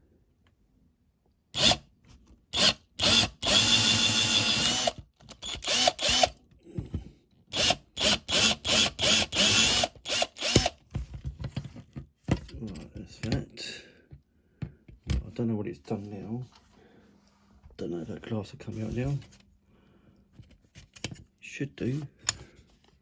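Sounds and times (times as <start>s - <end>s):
power drill bursts: 1.6s - 1.8s, 2.6s - 6.4s, 7.5s - 10.8s.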